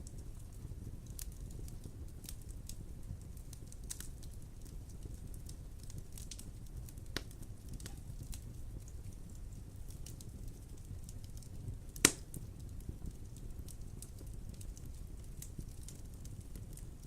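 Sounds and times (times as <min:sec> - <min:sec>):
wood fire crackling: 0:00.0 - 0:17.0
loud fire pop: 0:12.0 - 0:12.3.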